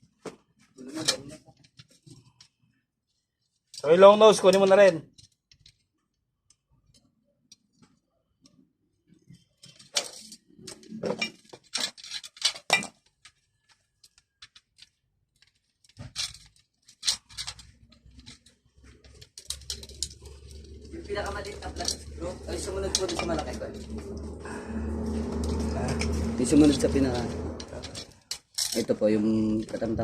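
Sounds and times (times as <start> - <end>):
metal hand tools clinking: 19.4 - 24.0.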